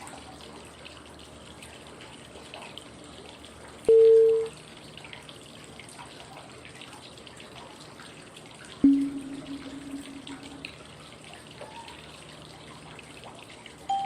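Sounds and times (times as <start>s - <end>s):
running water trickling: 0.0s - 14.0s
cue tone: 3.9s - 4.5s, 8.8s - 10.7s.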